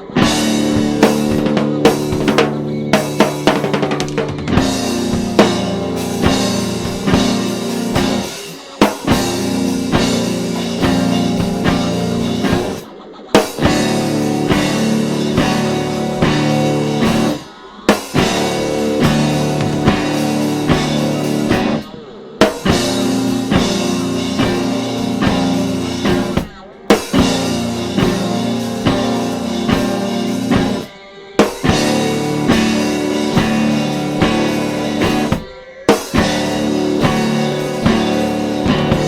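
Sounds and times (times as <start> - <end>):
rock music with guitar and drums: 0.0 - 39.0
sharp drum hit: 18.1 - 39.0.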